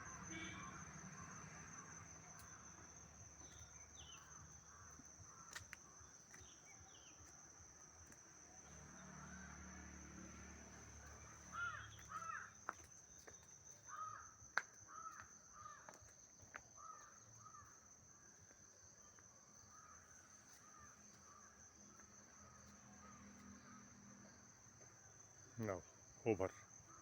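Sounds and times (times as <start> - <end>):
high insect drone: 0.0 - 27.0
bird harsh calls: 11.5 - 12.6.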